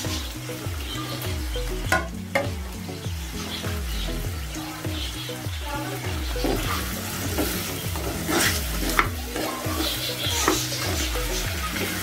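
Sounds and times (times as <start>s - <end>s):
background music with bass line: 0.0s - 12.0s
vegetables sizzling in butter: 0.0s - 12.0s
spatula knocking on a pan: 1.9s - 2.6s
spatula scraping a pan: 6.3s - 12.0s.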